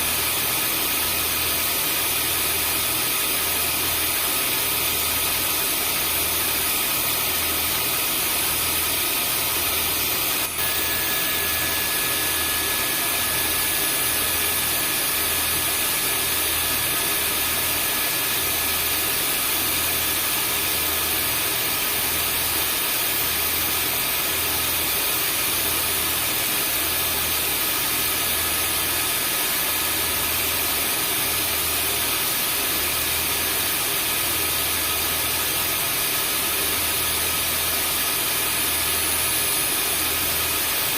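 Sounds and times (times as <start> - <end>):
vacuum cleaner motor running: 0.0 - 40.9
steady whistle tone: 10.6 - 19.1.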